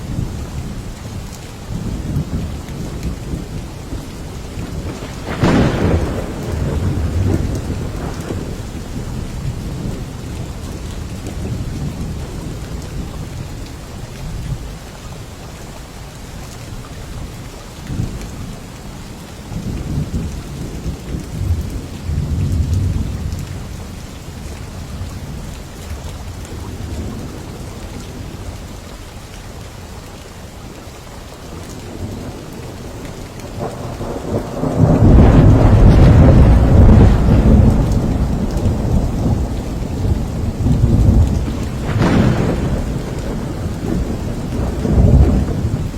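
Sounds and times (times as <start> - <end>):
thunder rumbling: 0.0 - 13.6, 31.8 - 45.9
steady rain: 0.0 - 45.9.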